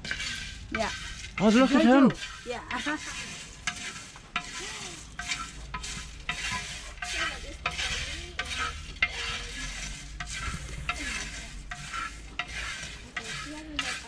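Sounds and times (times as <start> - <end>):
coffee beans scraping and rattling: 0.0 - 14.0.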